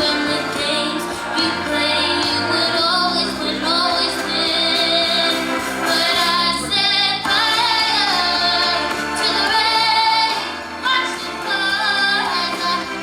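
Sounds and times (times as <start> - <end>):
girl singing a ballad: 0.0 - 13.0.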